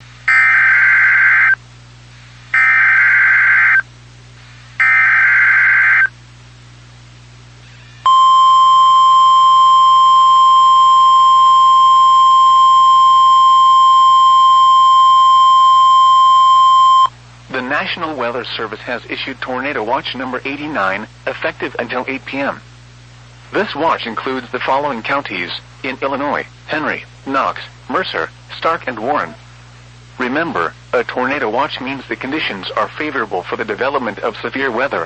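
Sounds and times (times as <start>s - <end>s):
steady alarm tone: 0.3s - 1.6s, 2.6s - 3.8s, 4.8s - 6.1s, 8.0s - 17.1s.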